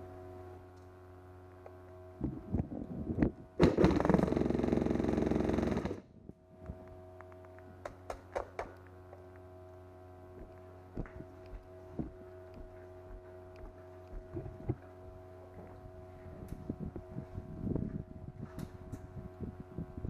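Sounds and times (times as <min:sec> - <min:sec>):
steady hum: 0:00.0 - 0:20.0
sharp clicks and knocks: 0:06.6 - 0:09.3.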